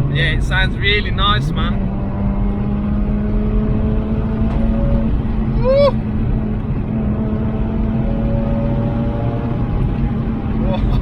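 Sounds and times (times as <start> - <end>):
rotary engine driving: 0.0 - 11.0
person shouting: 5.6 - 6.0.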